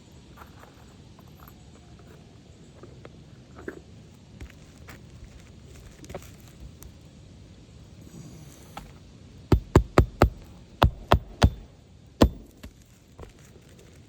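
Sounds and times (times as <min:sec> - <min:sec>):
hammer driving nails: 0:09.5 - 0:12.8.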